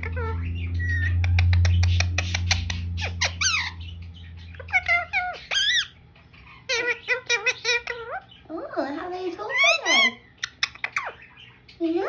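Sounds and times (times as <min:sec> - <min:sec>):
low hum: 0:00.0 - 0:08.5
parakeet chattering and squawking: 0:00.0 - 0:12.0.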